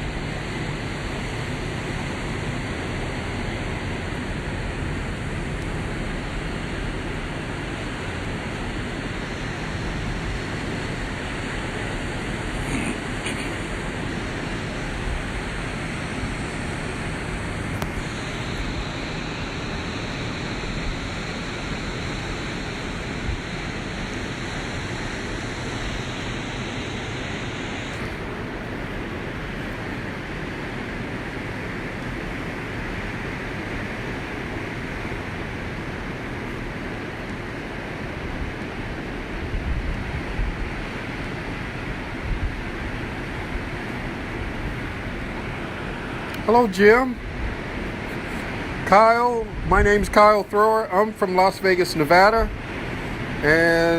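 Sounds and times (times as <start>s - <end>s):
ocean surf on a beach: 0.0s - 53.9s
wind on the microphone: 37.4s - 50.4s.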